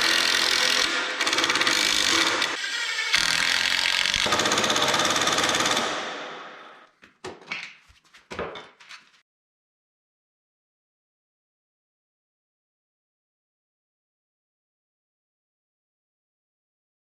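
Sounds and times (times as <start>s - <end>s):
power tool rattling: 0.0s - 6.5s.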